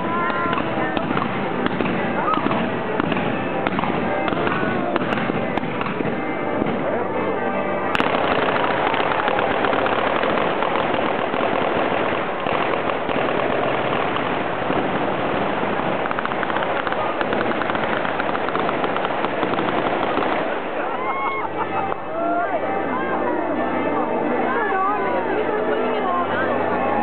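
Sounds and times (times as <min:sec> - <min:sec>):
fireworks crackling and popping: 0:00.0 - 0:06.9, 0:07.9 - 0:21.2
firework sharp bang: 0:00.5 - 0:06.8.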